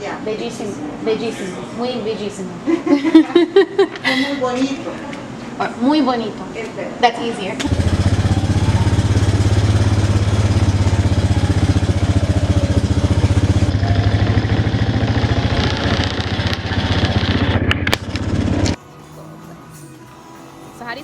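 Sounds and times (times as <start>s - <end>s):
engine running: 7.6s - 21.0s.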